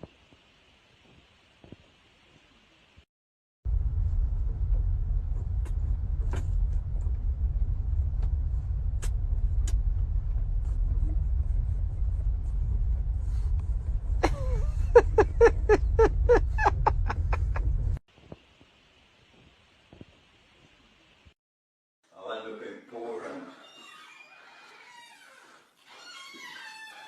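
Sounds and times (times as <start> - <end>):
vehicle rumbling: 3.7 - 18.0.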